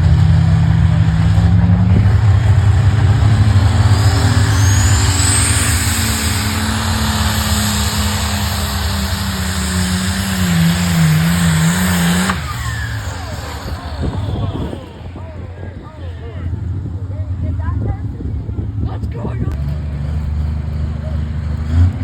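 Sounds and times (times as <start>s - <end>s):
engine running under load: 0.0s - 22.0s
high rising whistle: 3.7s - 8.8s.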